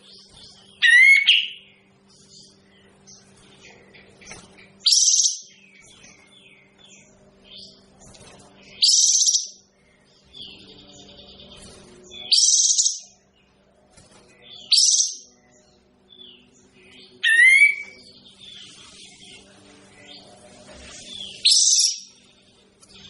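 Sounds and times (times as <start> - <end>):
faint low hum: 0.0 - 23.0
bird calling sharp high calls: 17.2 - 17.9.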